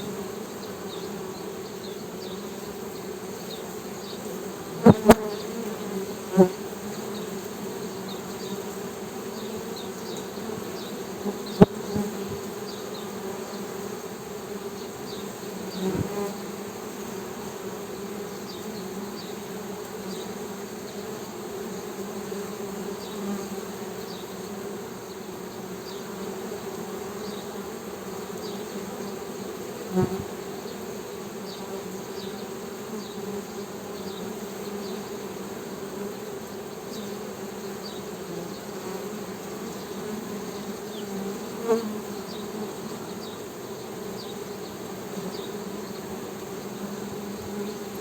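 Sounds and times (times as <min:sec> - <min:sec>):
bees humming: 0:00.0 - 0:48.0.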